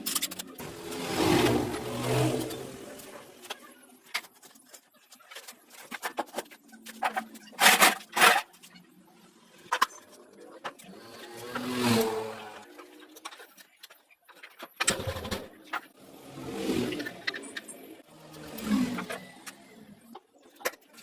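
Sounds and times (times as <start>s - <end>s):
clicks and scrapes of tools: 0.0s - 8.8s, 16.8s - 21.0s.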